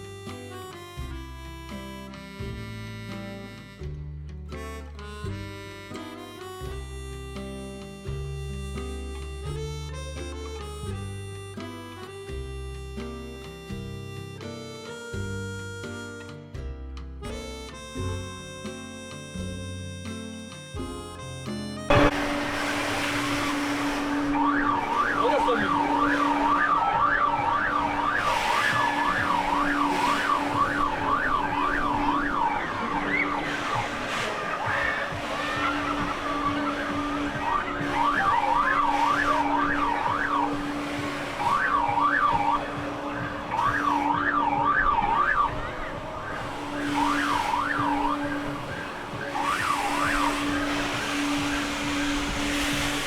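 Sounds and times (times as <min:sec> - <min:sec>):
background music: 0:00.0 - 0:53.0
electronic alarm warbling: 0:21.9 - 0:52.5
steady hum: 0:21.9 - 0:53.0.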